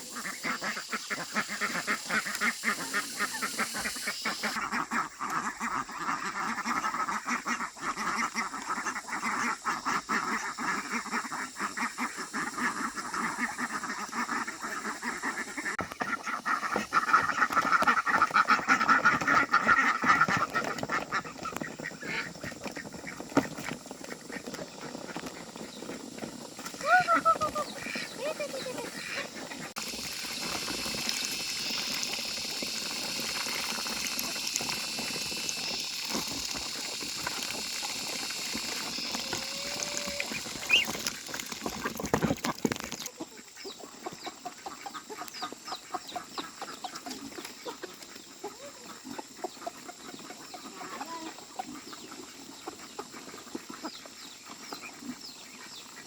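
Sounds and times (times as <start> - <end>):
steady hiss: 0.0 - 4.6, 26.4 - 42.1
fowl clucking: 0.0 - 23.2, 26.8 - 41.8.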